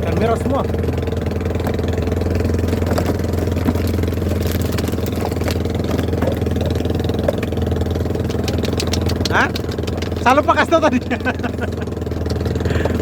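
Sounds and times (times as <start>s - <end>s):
boat engine running: 0.0s - 13.0s
faint clicks and knocks: 2.7s - 10.6s, 12.0s - 13.0s.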